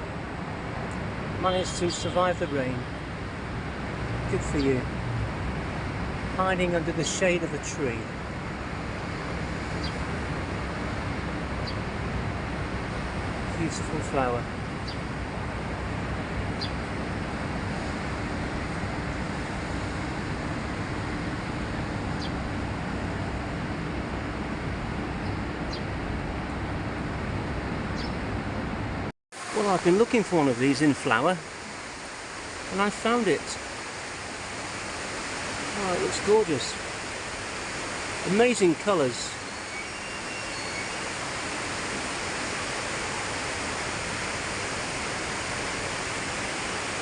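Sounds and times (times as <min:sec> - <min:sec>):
rushing outdoor background noise: 0:00.0 - 0:47.0
bird chirping: 0:28.0 - 0:28.2, 0:39.5 - 0:41.0.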